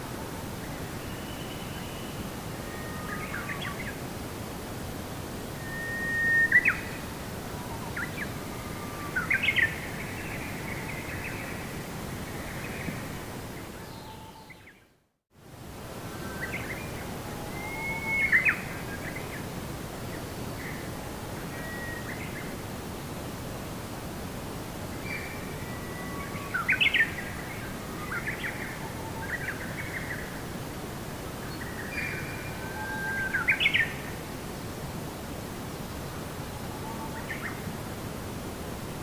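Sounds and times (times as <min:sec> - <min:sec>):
outdoor ambience hiss: 0:00.0 - 0:39.0.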